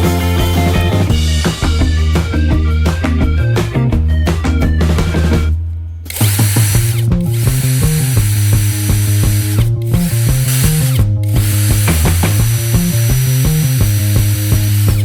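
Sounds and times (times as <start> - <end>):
background music with bass line: 0.0 - 15.0
power tool whirring: 6.1 - 15.0.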